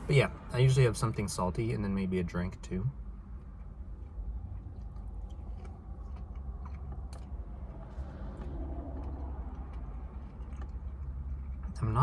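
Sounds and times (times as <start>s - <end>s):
steady low hum: 0.0s - 12.0s
person chewing crunchy food: 3.3s - 11.9s.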